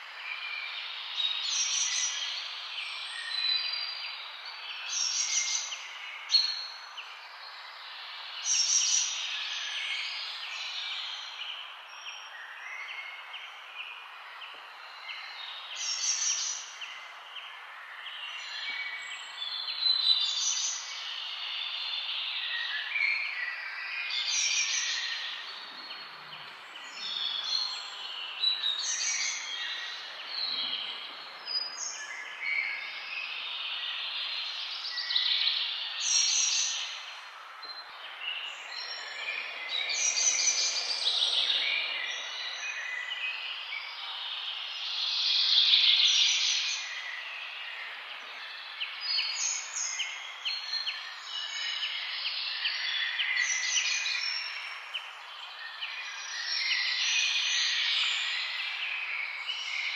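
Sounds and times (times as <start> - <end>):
birds chirping and singing: 17.8 - 59.9.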